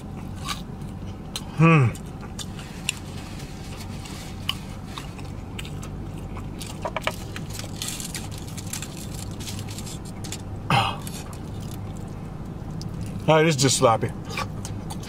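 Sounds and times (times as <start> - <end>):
steady low hum: 0.0 - 15.0
chewing and mouth smacking: 0.1 - 3.1, 3.7 - 7.4, 11.0 - 13.3, 14.3 - 15.0
person humming: 1.5 - 2.0
small clicks and crackles: 7.0 - 10.4.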